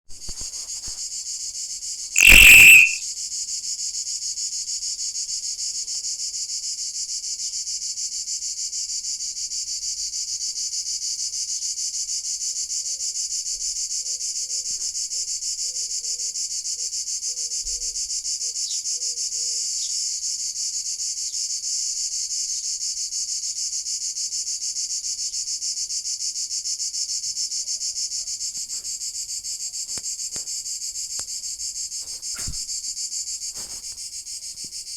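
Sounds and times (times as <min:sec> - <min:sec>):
cicada buzzing: 0:02.2 - 0:03.0
short loud burst: 0:02.2 - 0:03.0.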